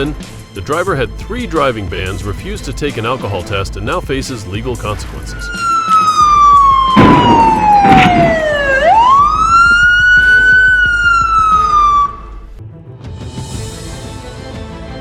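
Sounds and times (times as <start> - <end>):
police siren wailing: 5.3 - 12.5.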